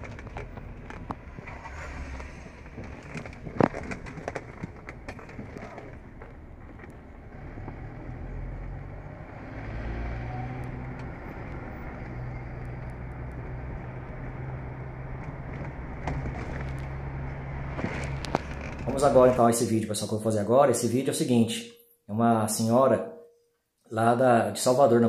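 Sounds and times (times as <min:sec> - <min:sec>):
car engine from inside cabin: 0:00.1 - 0:18.8.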